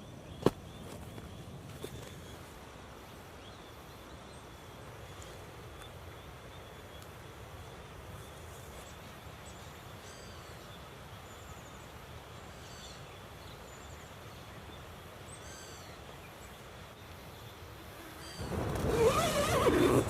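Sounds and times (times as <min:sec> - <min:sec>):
river rushing: 0:04.0 - 0:20.0.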